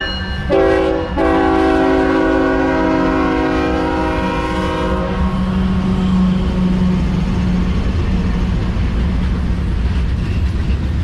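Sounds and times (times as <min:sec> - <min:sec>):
train rumble drone: 0:00.0 - 0:11.0
locomotive air horn blast: 0:00.5 - 0:06.3.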